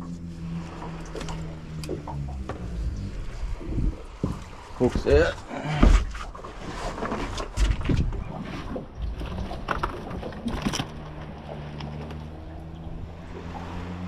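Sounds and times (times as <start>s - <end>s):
steady low hum: 0.0s - 6.3s
knocks and rustles of handling fish: 3.5s - 12.3s.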